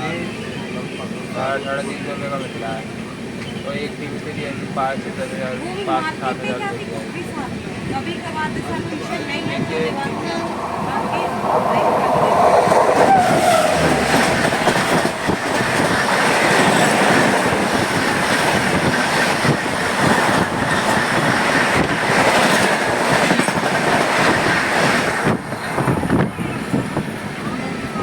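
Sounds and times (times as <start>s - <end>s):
train wheels rumbling on rails: 6.8s - 28.0s.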